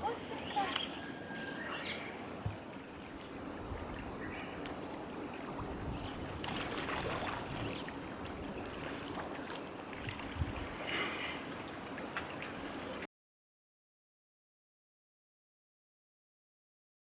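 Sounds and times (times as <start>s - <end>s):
flowing water: 0.0s - 13.1s.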